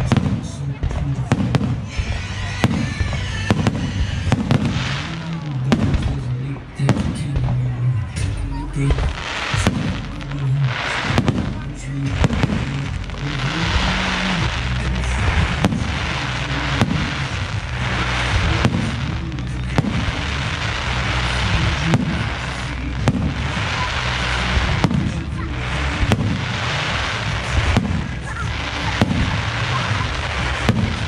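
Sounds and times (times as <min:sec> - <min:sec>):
fireworks bangs: 0:00.0 - 0:31.0
fireworks crackle: 0:00.0 - 0:31.0.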